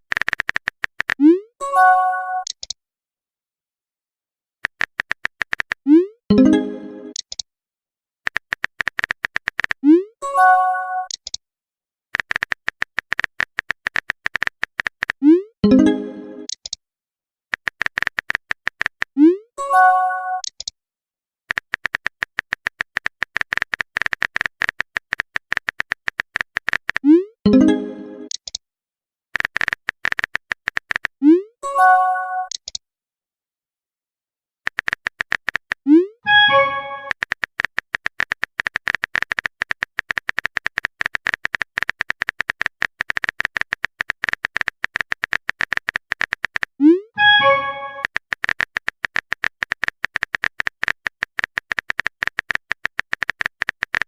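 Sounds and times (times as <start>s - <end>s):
rapid typing clicks: 0.1s - 1.4s, 4.6s - 5.8s, 8.3s - 9.8s, 12.1s - 15.2s, 17.5s - 19.2s, 21.5s - 27.1s, 29.3s - 31.2s, 34.6s - 35.9s, 36.6s - 46.8s, 47.4s - 54.0s.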